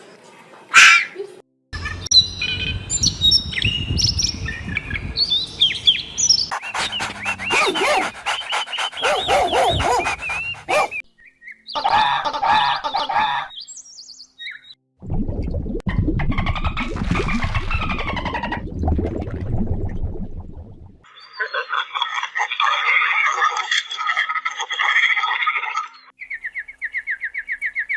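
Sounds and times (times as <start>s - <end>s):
birds chirping and calling: 1.8s - 11.0s.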